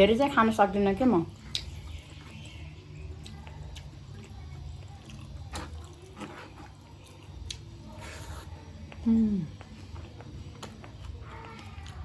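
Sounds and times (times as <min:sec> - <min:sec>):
chewing with wet clicks: 0:01.4 - 0:06.3, 0:06.9 - 0:07.8.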